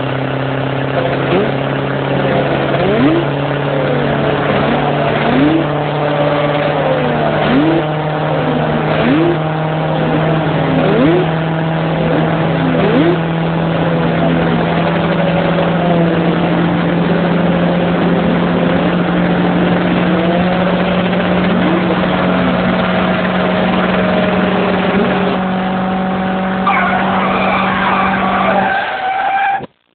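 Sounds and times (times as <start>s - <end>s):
motorcycle engine revving: 0.0s - 29.9s
higher broken sound: 26.6s - 29.8s.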